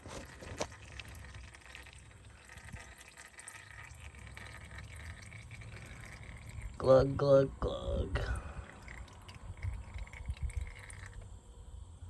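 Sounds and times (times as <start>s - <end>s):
oil pouring into a pan: 0.0s - 7.0s, 8.3s - 11.4s.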